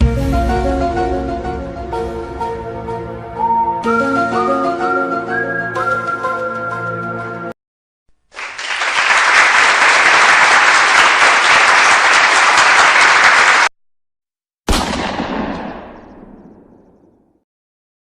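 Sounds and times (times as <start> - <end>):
loud impact: 0.0 - 3.3
crowd applauding: 8.3 - 13.7.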